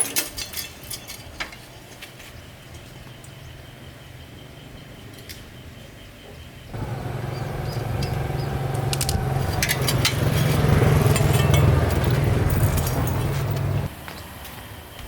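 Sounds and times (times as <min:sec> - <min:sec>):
light clicks: 0:06.8 - 0:13.9
small motorcycle engine running: 0:06.8 - 0:13.9.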